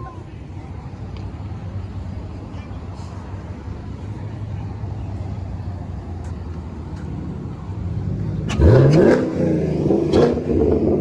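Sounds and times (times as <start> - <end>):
car engine idling and revving: 3.1 - 11.0.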